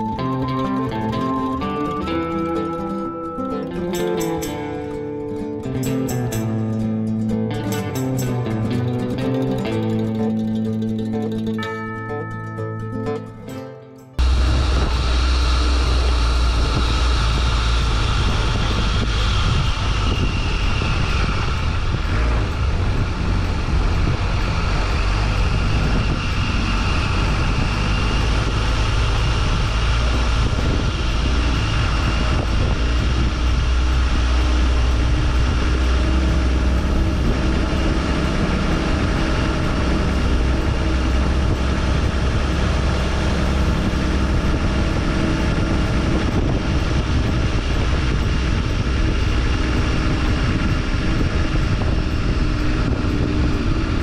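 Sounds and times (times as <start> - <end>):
engine rumbling at low speed: 0.0 - 13.5, 14.2 - 54.0
wind noise on microphone: 14.2 - 54.0.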